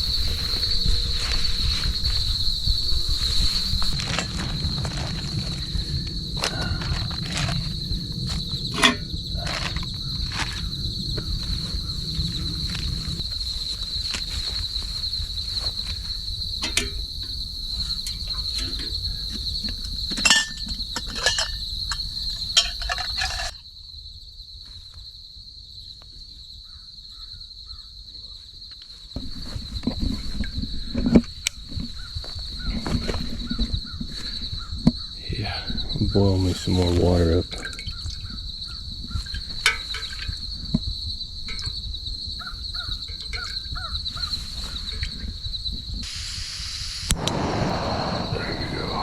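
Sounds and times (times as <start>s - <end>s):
high-pitched insect chorus: 0.0s - 49.0s
camp gear clicking and knocking: 6.4s - 10.7s, 16.6s - 23.6s, 29.2s - 35.1s, 39.0s - 41.8s.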